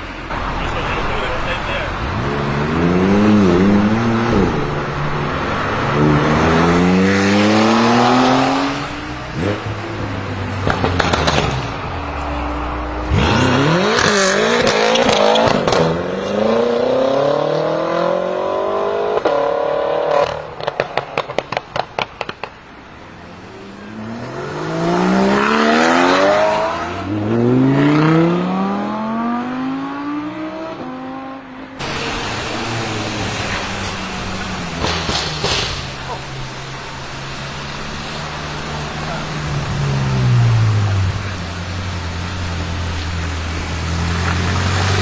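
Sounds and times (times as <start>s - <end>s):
exhaust crackles and pops: 0.0s - 16.0s, 20.2s - 22.9s, 31.8s - 45.0s
car engine accelerating hard: 0.0s - 45.0s.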